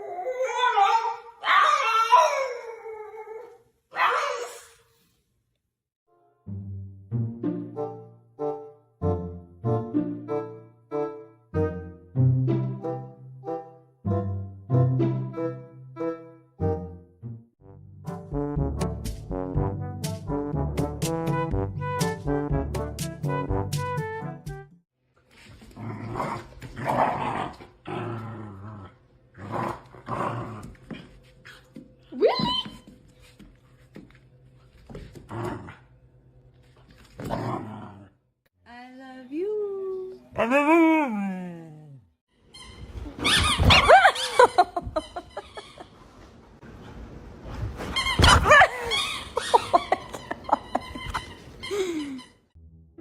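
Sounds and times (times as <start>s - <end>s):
dog growling: 25.7s - 30.8s.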